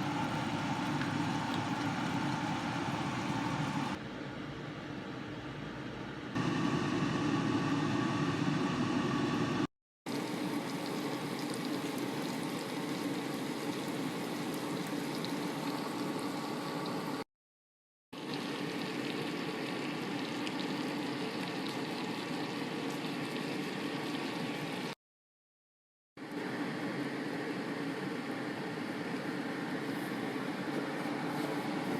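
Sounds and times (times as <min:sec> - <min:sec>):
pot boiling and bubbling: 0:00.0 - 0:04.0, 0:06.4 - 0:17.2, 0:18.2 - 0:25.0.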